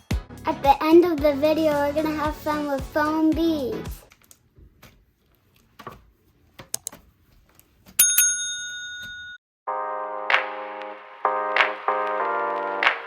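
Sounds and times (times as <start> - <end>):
music: 0.0 - 4.1, 9.7 - 13.0
small bell dinging: 8.0 - 9.4.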